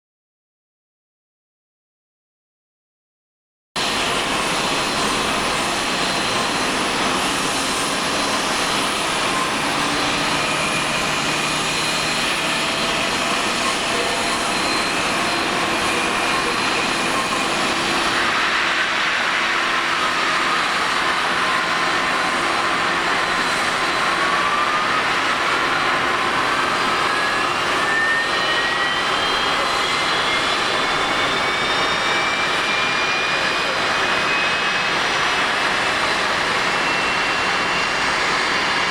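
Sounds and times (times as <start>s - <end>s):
engine whine rising in pitch: 3.8s - 38.9s
jet engines running: 3.8s - 38.9s.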